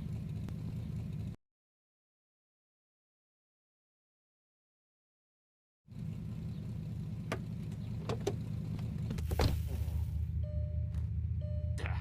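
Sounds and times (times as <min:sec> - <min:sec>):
car engine idling: 0:00.0 - 0:01.4, 0:05.9 - 0:12.0.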